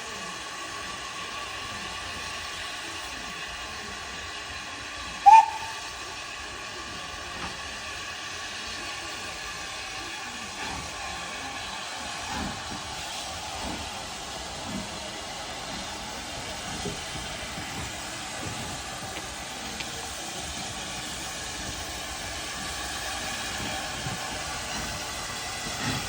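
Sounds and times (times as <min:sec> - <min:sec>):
steam hissing: 0:00.0 - 0:26.0
steam locomotive whistle: 0:05.1 - 0:06.0.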